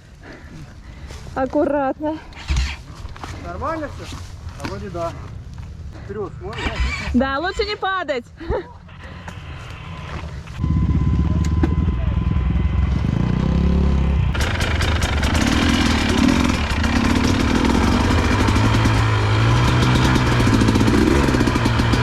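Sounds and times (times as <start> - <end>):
motorcycle engine running: 9.3 - 22.0.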